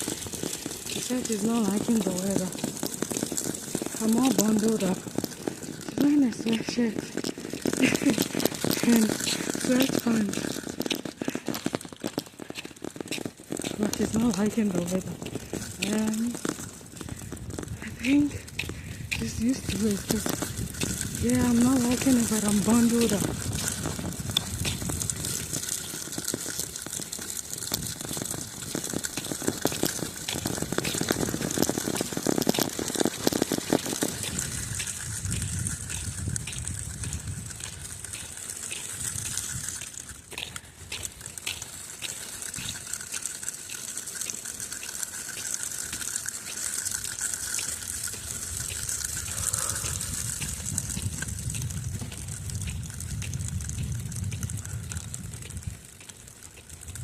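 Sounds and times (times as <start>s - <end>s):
regular crunching clicks: 0.0s - 57.0s
strong wind buffeting microphone: 16.9s - 25.8s, 27.7s - 40.7s, 47.8s - 56.0s.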